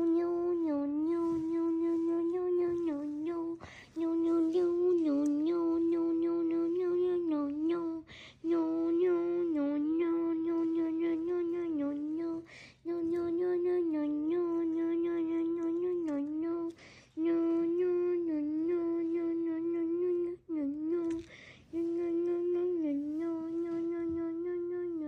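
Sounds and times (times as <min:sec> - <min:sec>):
person humming: 0:00.0 - 0:25.0
person breathing in: 0:03.6 - 0:04.0, 0:16.8 - 0:17.2, 0:21.2 - 0:21.7.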